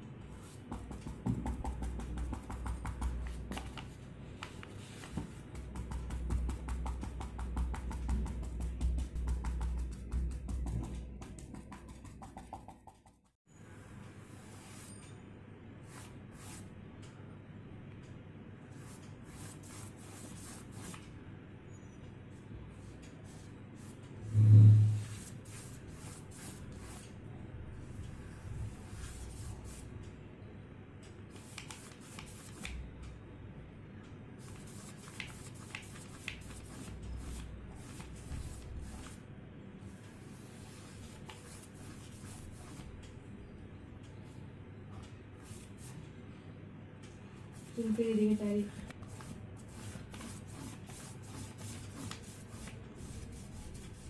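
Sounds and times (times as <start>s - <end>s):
paintbrush scratching on paper: 0.3s - 4.0s, 4.6s - 13.4s, 15.9s - 16.6s, 18.8s - 21.0s, 23.2s - 27.1s, 31.4s - 32.7s, 34.4s - 39.2s, 40.3s - 42.9s, 47.6s - 54.0s.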